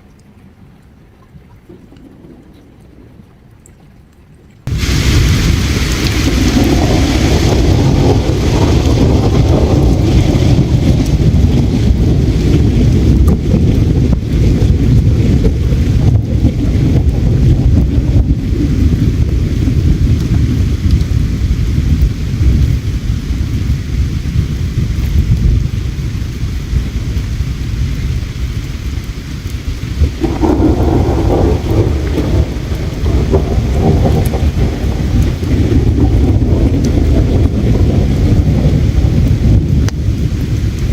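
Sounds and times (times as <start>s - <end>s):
river water flowing: 0.0s - 7.5s
river water rumbling: 0.0s - 40.9s
rushing water: 0.0s - 40.9s
campfire crackling: 4.6s - 40.9s.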